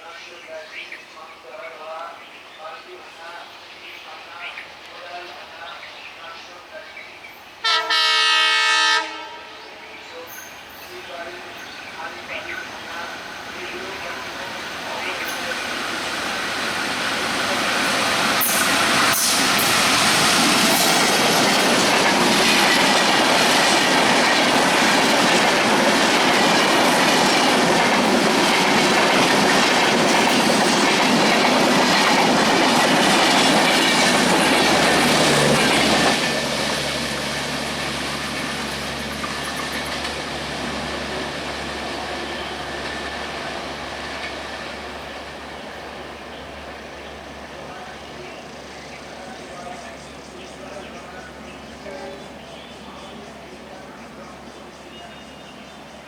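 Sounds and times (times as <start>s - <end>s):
train passing at speed: 2.6s - 56.0s
wheels clicking on rails: 10.3s - 45.4s.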